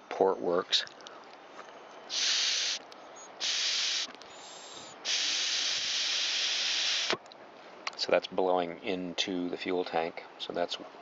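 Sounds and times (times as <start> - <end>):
air rushing through vent: 2.1 - 7.2.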